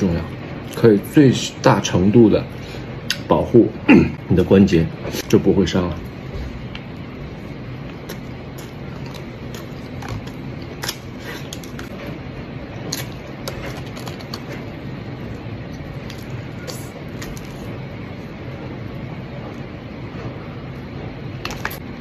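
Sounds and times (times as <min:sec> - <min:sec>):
low room hum: 0:00.0 - 0:22.0
chewing crunches: 0:07.8 - 0:12.1
food handling clicks and rustles: 0:08.0 - 0:12.2, 0:12.8 - 0:14.9.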